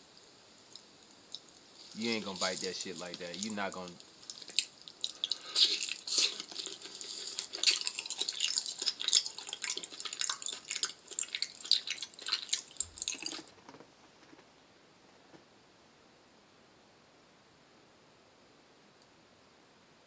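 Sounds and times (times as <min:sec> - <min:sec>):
wet chewing and mouth smacks: 0:02.1 - 0:13.5.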